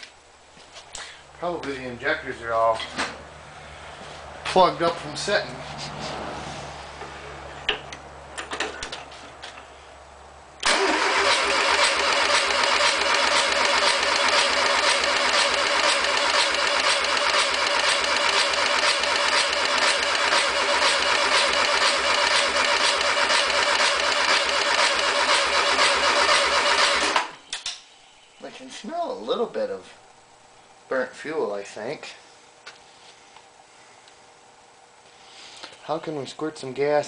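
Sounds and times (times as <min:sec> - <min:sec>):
engine cranking with starter: 0:10.6 - 0:27.4.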